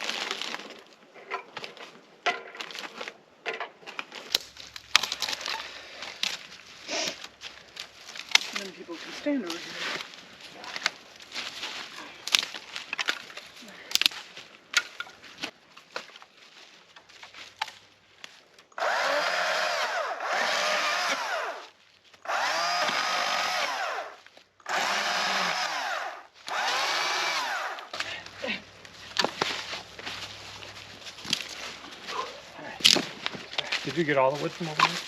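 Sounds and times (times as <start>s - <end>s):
electric power tool running: 18.8s - 21.6s, 22.2s - 28.6s.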